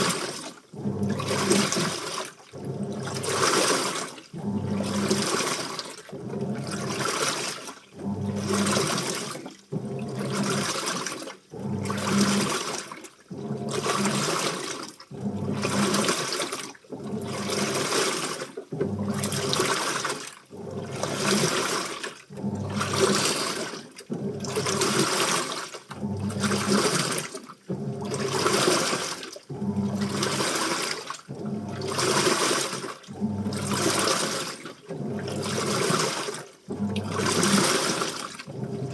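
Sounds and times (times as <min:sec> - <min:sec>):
washing machine motor hum: 0:00.0 - 0:38.9
water sloshing in washing machine: 0:00.0 - 0:38.9.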